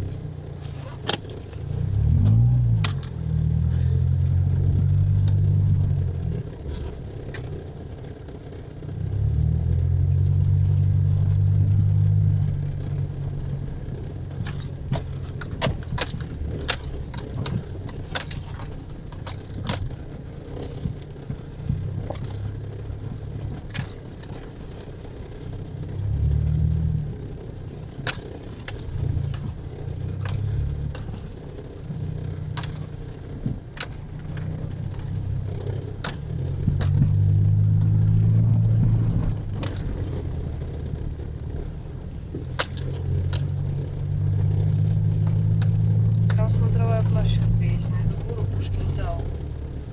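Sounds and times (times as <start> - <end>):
car engine rumbling: 0.0 - 49.9
loose objects jangling: 14.0 - 49.6.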